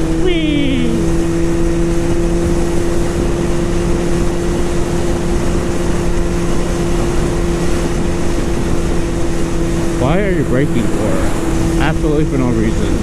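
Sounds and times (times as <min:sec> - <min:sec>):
wind noise on microphone: 0:00.0 - 0:11.9
motorcycle engine droning: 0:00.0 - 0:13.0.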